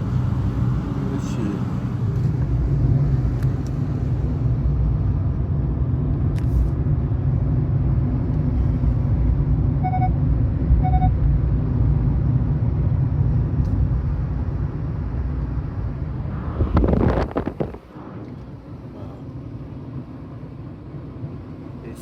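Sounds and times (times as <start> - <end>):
car road and engine rumble: 0.0 - 22.0
short electronic beeps: 9.8 - 10.2, 10.8 - 11.2.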